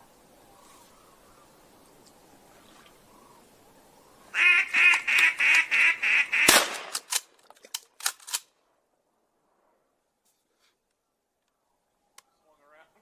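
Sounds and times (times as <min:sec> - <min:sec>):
duck call quacks: 0:04.3 - 0:06.6
sharp crack: 0:04.8 - 0:08.5.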